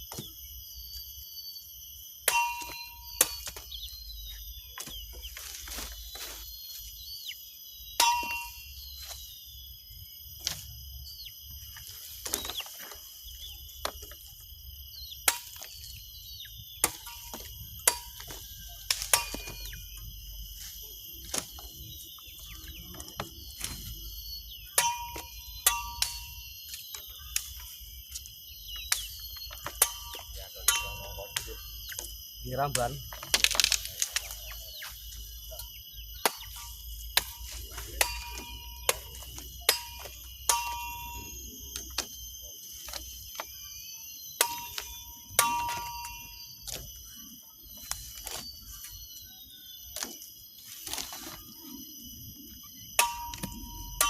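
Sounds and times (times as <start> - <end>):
high-pitched background whine: 0.0 - 54.0
metallic ring of blade: 2.3 - 3.4, 8.0 - 8.8, 18.9 - 19.9, 24.7 - 26.5, 29.8 - 31.7, 37.2 - 42.0, 44.4 - 46.8, 53.0 - 54.0
machete chopping: 2.3 - 3.8, 15.2 - 15.9, 16.8 - 20.0, 21.2 - 21.8, 28.8 - 32.1, 36.2 - 42.2, 44.4 - 46.9, 53.0 - 54.0.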